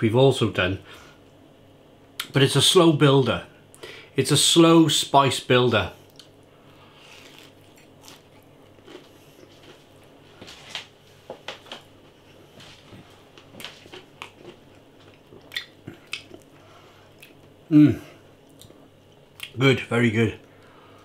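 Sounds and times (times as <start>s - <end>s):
person chewing crispy food: 6.0s - 10.9s, 11.7s - 17.6s.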